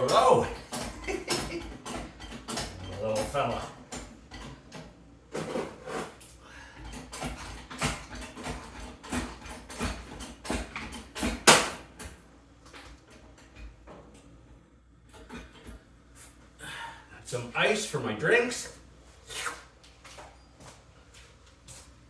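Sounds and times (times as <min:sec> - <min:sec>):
hard objects knocking and clattering: 0:00.0 - 0:05.8, 0:06.8 - 0:12.1.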